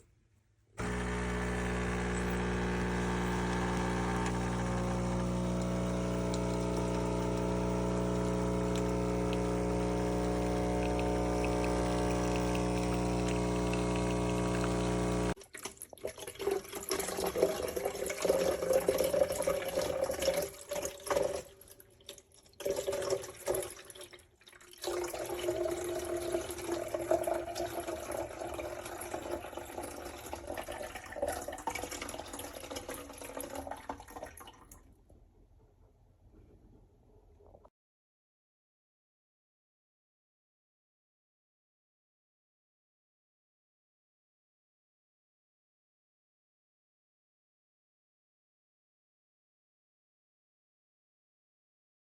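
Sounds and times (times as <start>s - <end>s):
espresso machine pump buzzing: 0.8s - 15.4s
water running and gurgling: 0.8s - 34.5s.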